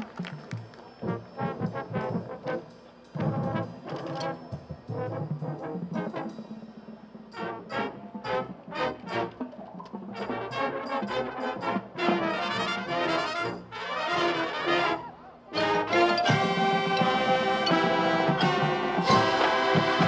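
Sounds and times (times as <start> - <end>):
brass section playing chords: 0.9 - 20.0.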